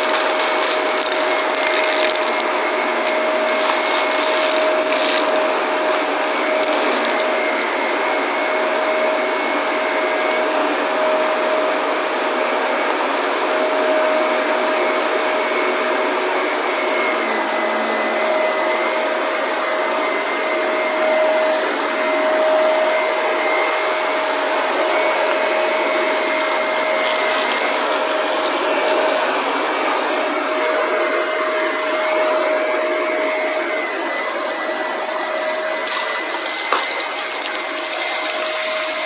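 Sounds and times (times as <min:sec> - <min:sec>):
debris crackling in vacuum: 0:00.0 - 0:08.3, 0:35.0 - 0:39.0
vacuum cleaner motor whine: 0:00.0 - 0:39.0.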